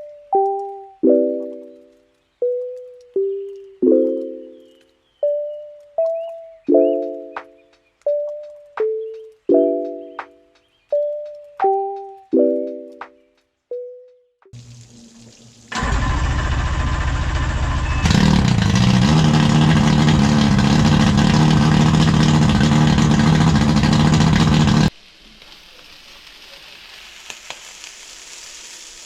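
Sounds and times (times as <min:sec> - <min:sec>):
low hum: 0:14.6 - 0:24.9
engine running: 0:15.7 - 0:24.9
quiet hiss: 0:24.9 - 0:29.0.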